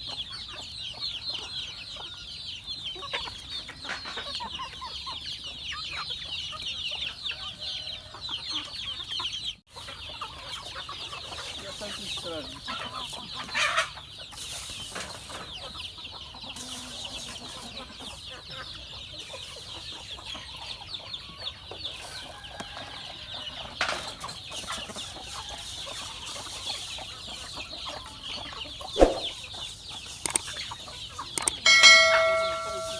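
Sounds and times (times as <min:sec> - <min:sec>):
chickens clucking: 0:00.0 - 0:32.9
high chirping: 0:29.0 - 0:29.4, 0:31.4 - 0:32.9
sharp knock: 0:29.0 - 0:29.4.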